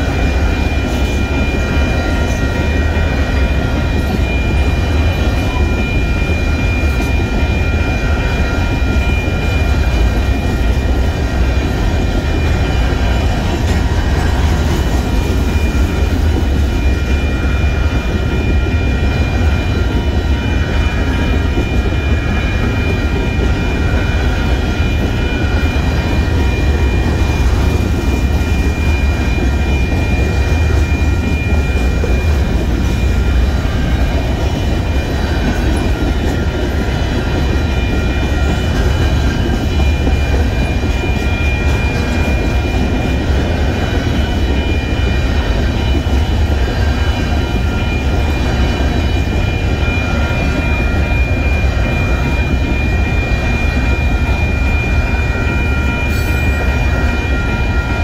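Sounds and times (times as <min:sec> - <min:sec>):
high ringing tone: 0:00.0 - 0:58.0
train rolling on rails: 0:00.0 - 0:58.0.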